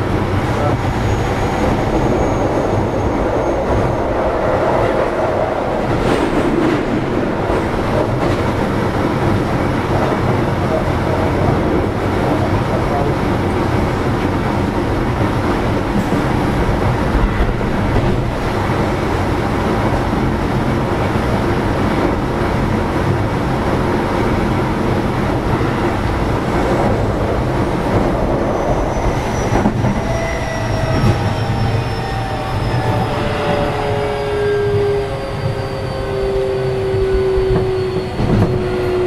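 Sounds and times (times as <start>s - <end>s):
train wheels rumbling on rail: 0.0s - 39.0s
multi-tone train motor whine: 24.4s - 39.0s.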